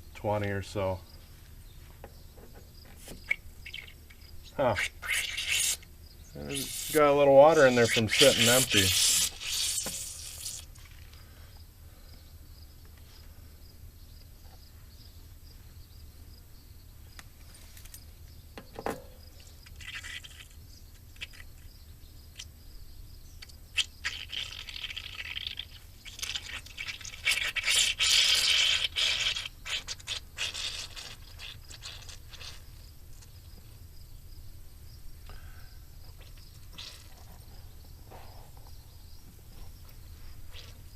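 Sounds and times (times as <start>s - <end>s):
air hissing from tire valve: 6.5s - 10.7s.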